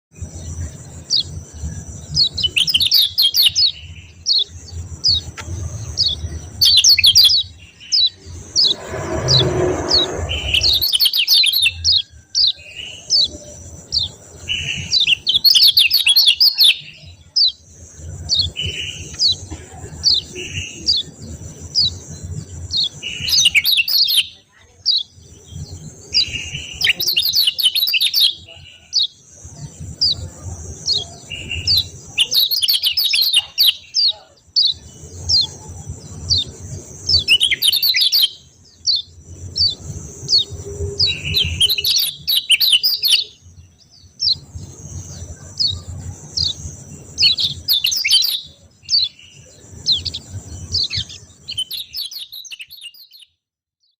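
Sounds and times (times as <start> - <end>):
bird chirping rapidly: 2.1 - 17.6, 30.9 - 43.4, 44.0 - 53.4
low hum: 8.1 - 11.4.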